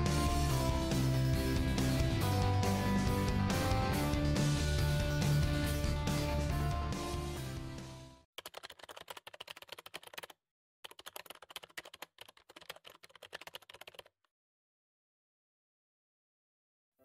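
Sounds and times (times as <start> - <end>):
rapid keyboard typing clicks: 8.4 - 14.1.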